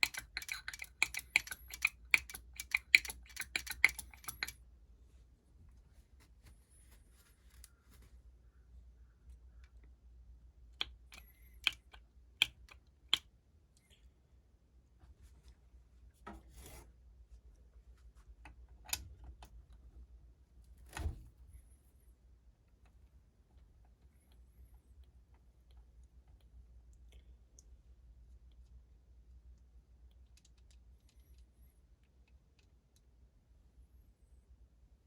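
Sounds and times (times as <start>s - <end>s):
metal tools clicking and tapping: 0.0s - 4.6s
short rustle: 5.7s - 8.4s.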